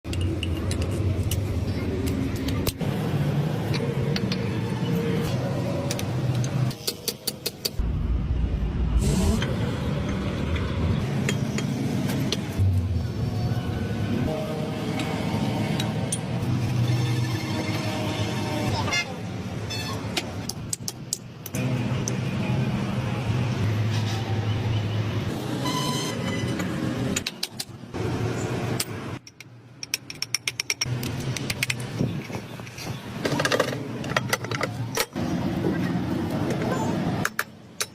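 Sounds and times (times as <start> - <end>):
vehicle engine rumbling: 7.6 - 18.4
sharp clicks and knocks: 28.8 - 35.2.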